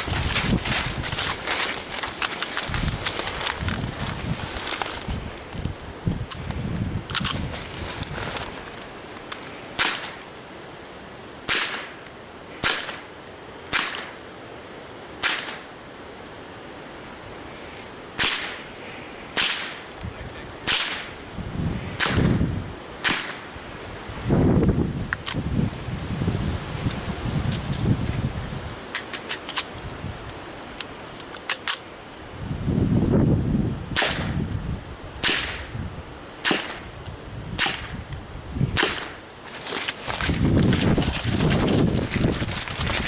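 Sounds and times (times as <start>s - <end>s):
low rustling or wind noise: 0.0s - 43.0s
rifle shots cracking: 9.8s - 10.2s, 11.5s - 12.0s, 12.6s - 13.1s, 13.7s - 14.2s, 15.2s - 15.7s, 18.2s - 18.6s, 19.4s - 19.8s, 20.7s - 21.1s, 23.0s - 23.4s, 36.4s - 36.8s, 38.8s - 39.2s
rifle shots: 12.6s - 13.0s, 18.2s - 18.6s, 20.7s - 21.1s, 36.4s - 36.8s, 38.8s - 39.2s.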